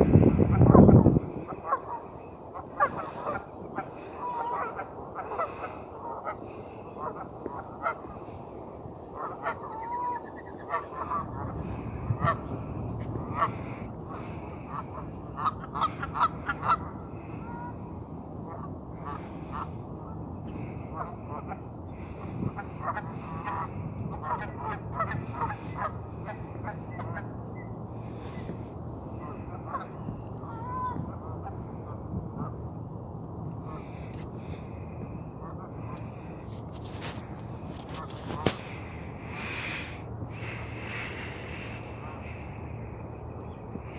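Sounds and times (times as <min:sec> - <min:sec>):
geese honking: 0:00.0 - 0:17.8, 0:22.5 - 0:27.4, 0:29.1 - 0:31.6
low background rumble: 0:00.0 - 0:43.9.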